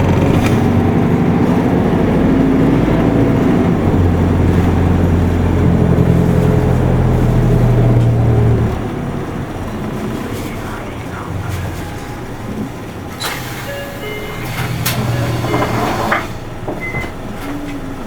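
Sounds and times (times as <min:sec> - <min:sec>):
bus diesel engine running: 0:00.0 - 0:18.0.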